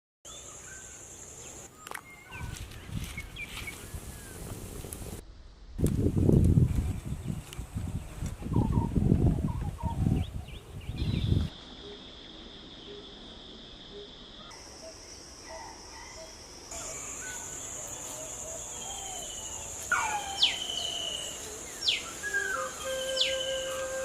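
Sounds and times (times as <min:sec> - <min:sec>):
birds whistling: 0:16.0 - 0:24.0
high-pitched insect drone: 0:16.3 - 0:24.0.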